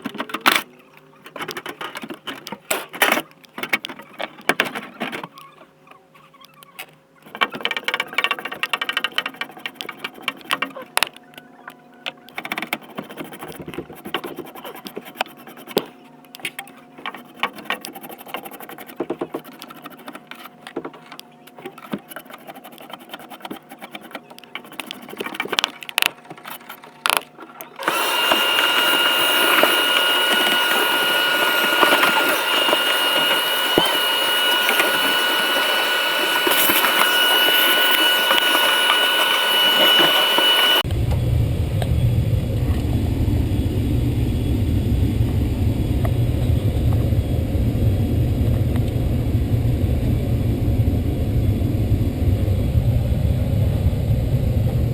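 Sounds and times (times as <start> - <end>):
electric machine whining: 27.1 - 54.9.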